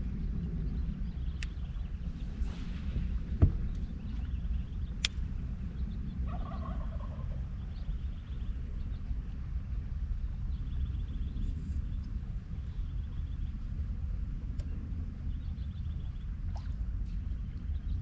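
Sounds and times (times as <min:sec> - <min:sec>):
steady low rumble: 0:00.0 - 0:18.0
faint click: 0:01.4 - 0:01.6, 0:05.0 - 0:05.2.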